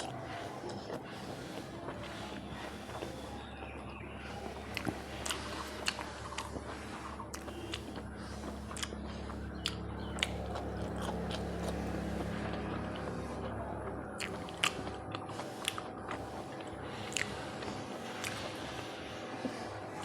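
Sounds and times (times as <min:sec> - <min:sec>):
low steady hum: 0:00.0 - 0:20.0
person chewing: 0:00.0 - 0:20.0
wet mouth clicks and smacks: 0:04.6 - 0:12.2, 0:14.2 - 0:17.4, 0:18.1 - 0:18.7.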